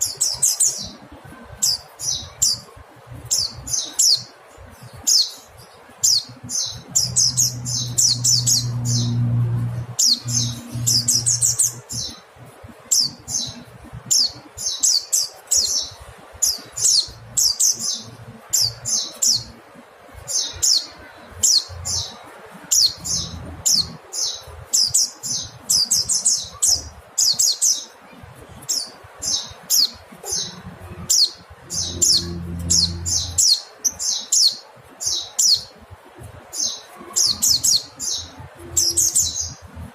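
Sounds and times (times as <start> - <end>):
low hum: 7.0 - 11.9, 31.6 - 33.4.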